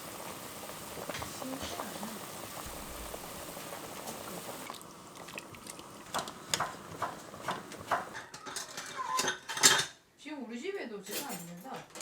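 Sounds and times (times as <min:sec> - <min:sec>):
steady hiss: 0:00.0 - 0:08.2
utensils and dishes clinking: 0:07.5 - 0:10.0.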